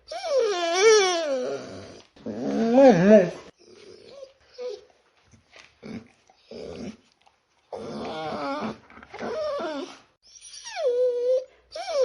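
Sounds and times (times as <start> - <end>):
dog whimpering: 0.0 - 4.9, 7.7 - 12.0.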